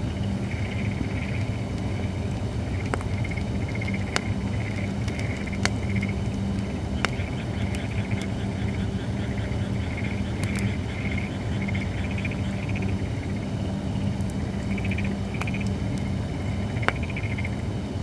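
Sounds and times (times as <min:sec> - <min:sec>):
fire crackling pops: 0:00.0 - 0:18.0
firewood burning with low rumble: 0:00.0 - 0:18.0.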